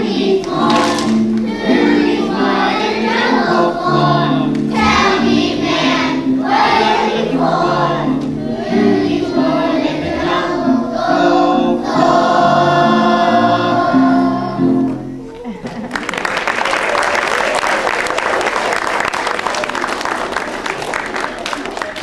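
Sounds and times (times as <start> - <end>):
young voices singing in unison: 0.0 - 15.2
instrumental accompaniment: 0.0 - 15.6.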